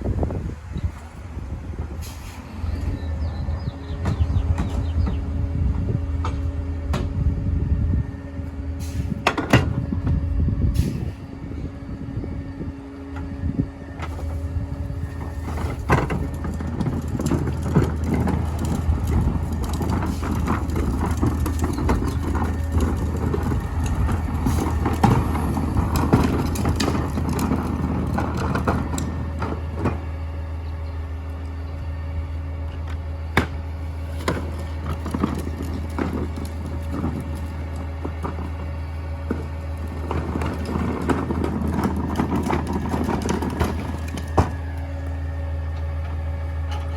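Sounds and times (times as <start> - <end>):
garbage truck engine running: 0.0 - 46.9
packer rattling and crunching trash: 14.0 - 30.1, 33.9 - 44.8.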